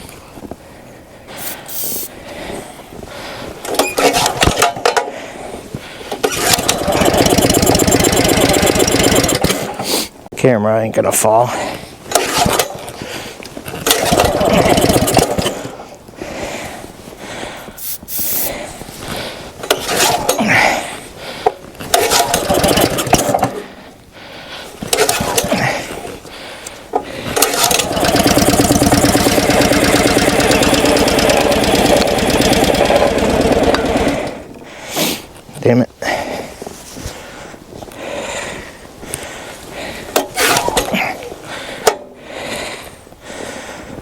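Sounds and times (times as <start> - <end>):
small gasoline engine starting: 1.4 - 2.1, 3.7 - 5.1, 6.2 - 10.0, 12.1 - 12.8, 13.7 - 15.8, 19.6 - 20.5, 21.9 - 23.6, 24.9 - 26.0, 27.2 - 34.7.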